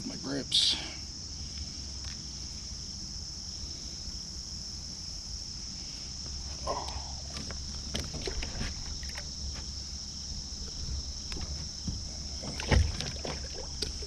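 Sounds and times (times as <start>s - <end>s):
fish thrashing: 6.6s - 9.8s, 10.4s - 14.0s
water splashing: 6.7s - 9.7s, 10.6s - 14.0s
knocks against kayak hull: 10.7s - 14.0s.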